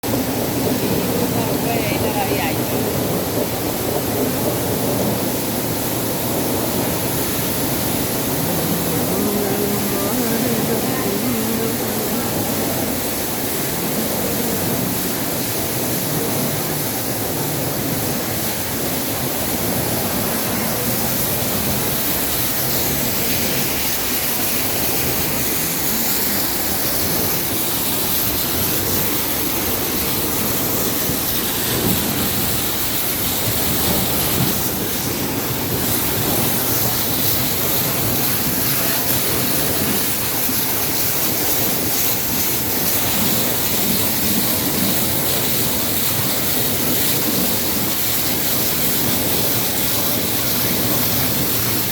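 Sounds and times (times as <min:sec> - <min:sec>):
washing machine rushing water: 0:00.0 - 0:51.9.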